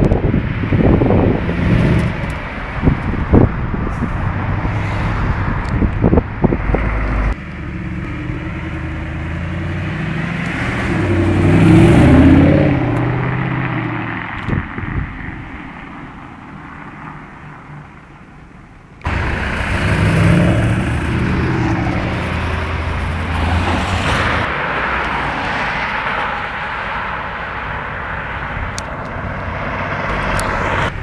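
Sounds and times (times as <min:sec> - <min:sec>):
car engine running: 0:18.0 - 0:23.4.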